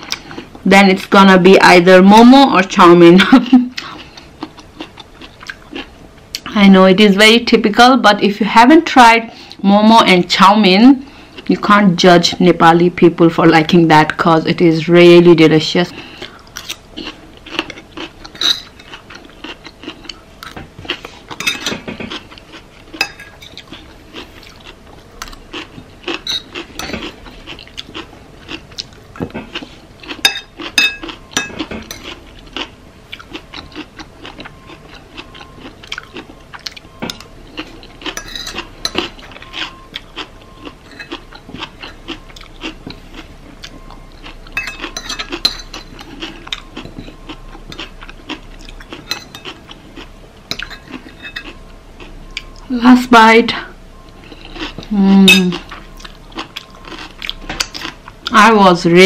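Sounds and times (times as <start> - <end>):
faint steady hum: 0.0 - 59.0
chewing and biting: 16.2 - 21.4, 22.0 - 52.7, 55.5 - 58.4.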